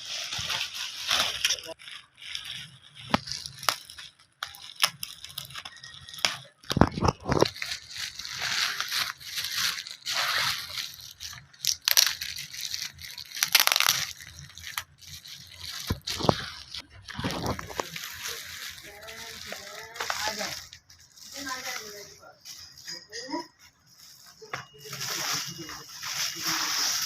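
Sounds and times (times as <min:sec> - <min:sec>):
wrapping crinkling and tearing: 0:00.0 - 0:22.9, 0:23.6 - 0:27.0.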